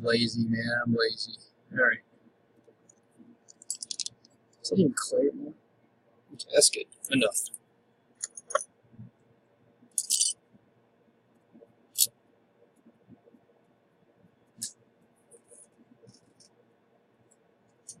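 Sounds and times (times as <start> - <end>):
small clicks and taps: 2.6 - 4.4.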